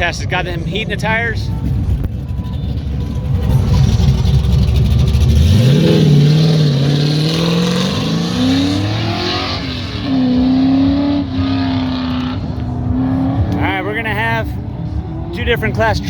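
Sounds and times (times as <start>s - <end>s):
truck engine accelerating: 0.0s - 16.0s.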